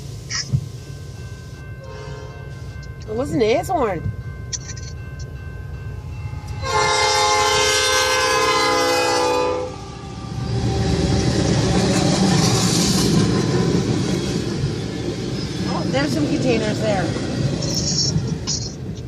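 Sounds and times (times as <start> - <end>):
freight train rumbling past: 0.0 - 19.0
locomotive air horn: 1.8 - 2.7, 6.4 - 10.6.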